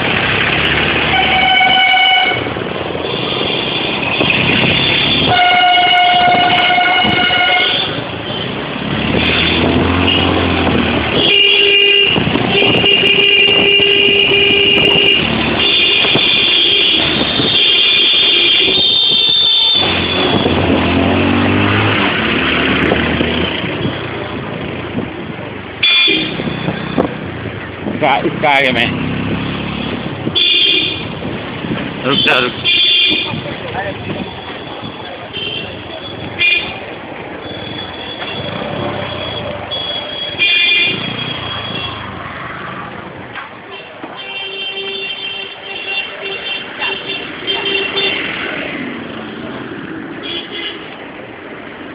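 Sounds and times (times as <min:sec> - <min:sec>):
road and wind noise: 0:00.0 - 0:51.9
vehicle horn honking: 0:01.0 - 0:02.5, 0:03.2 - 0:08.0, 0:11.1 - 0:20.6, 0:25.8 - 0:26.8, 0:30.4 - 0:31.1, 0:32.1 - 0:33.3, 0:39.2 - 0:42.1, 0:43.7 - 0:48.2, 0:50.2 - 0:51.0.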